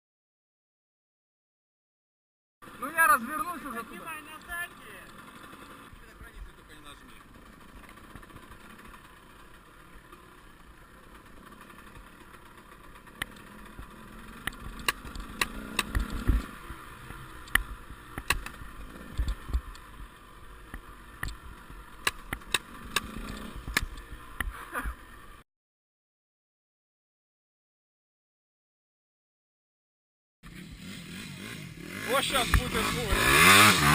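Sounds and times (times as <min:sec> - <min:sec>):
distant motorcycle engines: 0:02.6 - 0:25.4, 0:30.4 - 0:33.9
sharp clicks and knocks: 0:13.2 - 0:19.9, 0:20.7 - 0:24.6.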